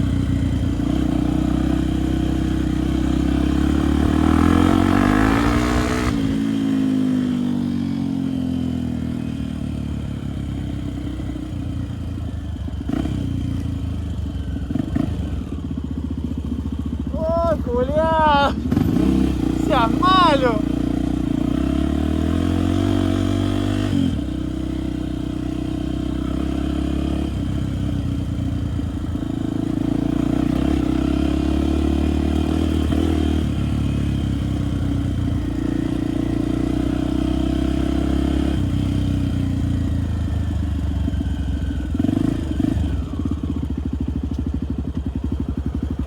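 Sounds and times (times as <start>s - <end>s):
dirt bike engine revving: 0.6s - 7.7s, 12.8s - 13.5s, 14.6s - 15.6s, 17.1s - 28.4s, 29.2s - 39.4s, 41.8s - 43.7s.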